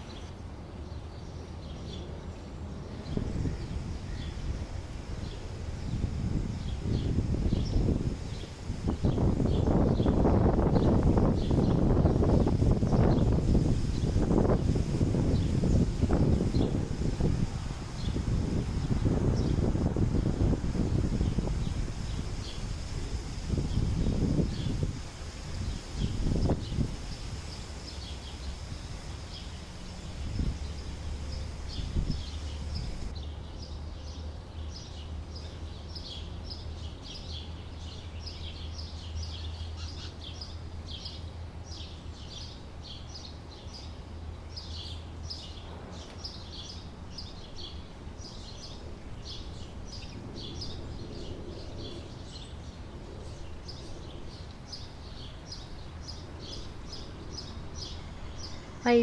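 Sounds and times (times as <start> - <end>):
birds chirping: 25.6 - 33.6.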